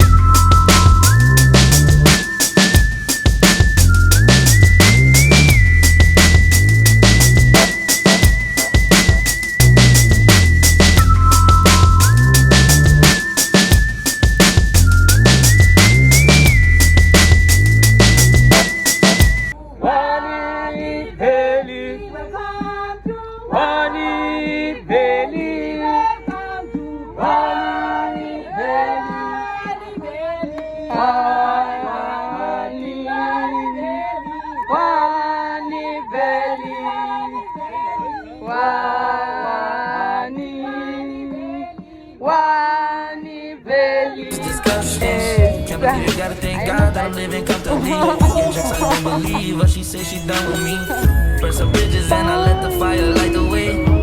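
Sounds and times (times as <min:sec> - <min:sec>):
group singing unaccompanied: 0:18.0 - 0:54.0.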